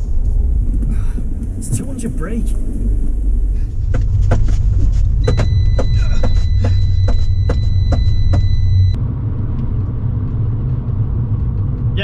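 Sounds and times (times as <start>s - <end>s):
car engine and road rumble: 0.0s - 12.0s
regular ticking: 5.2s - 9.0s
steady high tone: 5.2s - 9.0s.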